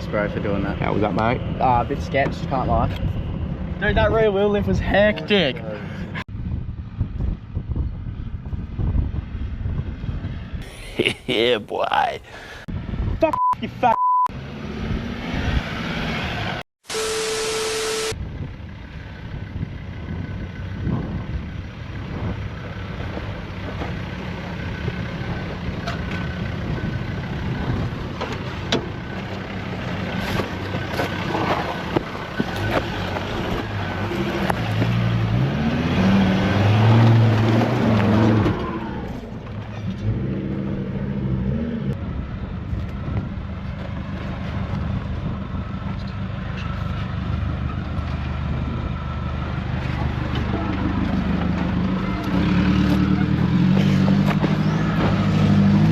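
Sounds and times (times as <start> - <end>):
off-road vehicle engine revving: 20.1 - 42.3, 44.0 - 55.9.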